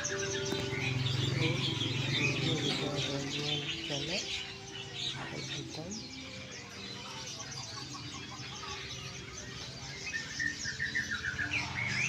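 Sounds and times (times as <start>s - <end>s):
songbirds chirping and twittering: 0.0s - 12.0s.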